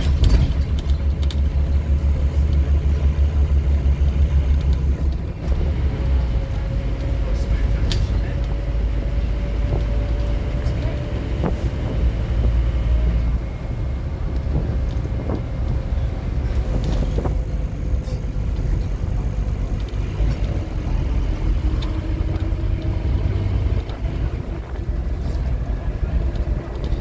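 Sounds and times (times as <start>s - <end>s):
rattles and knocks: 0.0s - 3.1s
diesel engine drone: 0.0s - 27.0s
road rumble: 0.0s - 27.0s.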